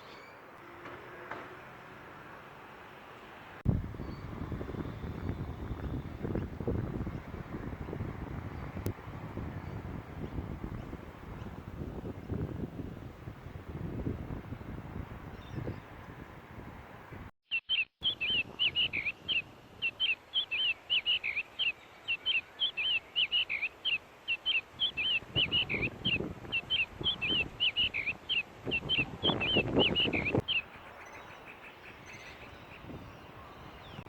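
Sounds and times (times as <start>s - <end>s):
bird chirping: 17.5s - 34.0s.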